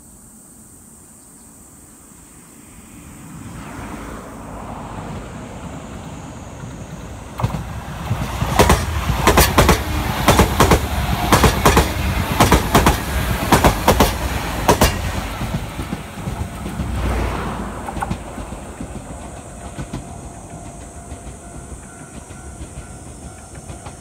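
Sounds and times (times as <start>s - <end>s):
low train rumble: 0.1s - 24.0s
wheels clacking over rail joints: 5.1s - 24.0s.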